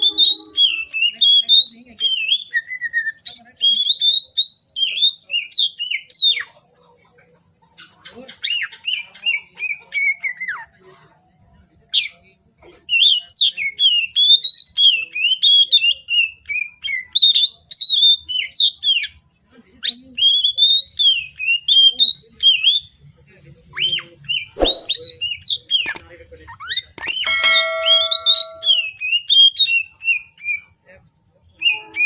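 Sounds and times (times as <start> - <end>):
songbird singing whistled notes: 0.0 - 6.5, 12.9 - 19.2, 19.8 - 23.0, 23.8 - 26.0, 26.6 - 30.8, 31.5 - 32.0.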